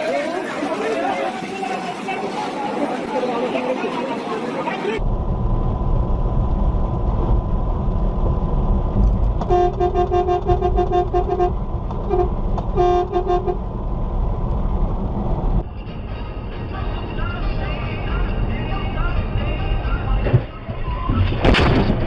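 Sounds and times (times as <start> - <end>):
road and engine rumble: 0.0 - 22.0
vehicle horn short toots: 9.5 - 13.6.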